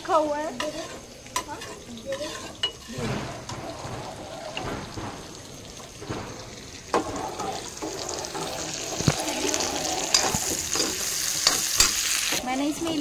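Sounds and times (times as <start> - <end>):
cauliflower sizzling in oil: 0.0 - 3.3, 6.5 - 13.0
metal spatula knocking pan: 0.5 - 12.2.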